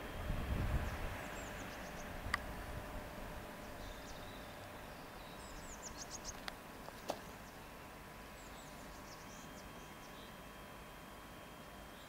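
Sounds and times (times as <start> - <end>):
small bird chirping: 3.6 - 7.7, 8.3 - 10.4.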